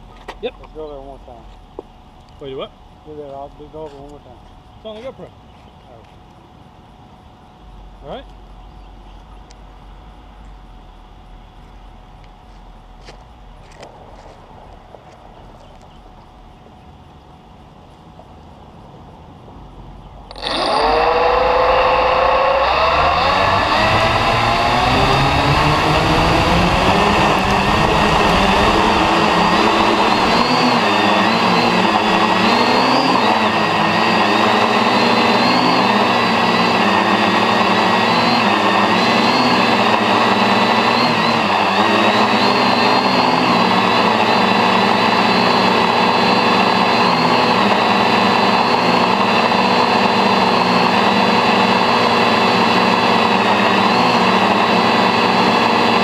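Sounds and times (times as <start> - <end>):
drone motors and propellers whining: 6.9 - 56.0
deep rumble: 20.9 - 32.6.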